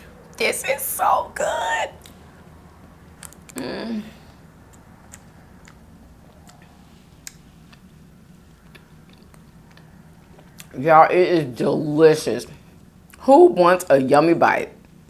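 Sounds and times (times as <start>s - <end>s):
person humming: 3.6s - 4.2s
close-miked chewing: 4.7s - 10.8s.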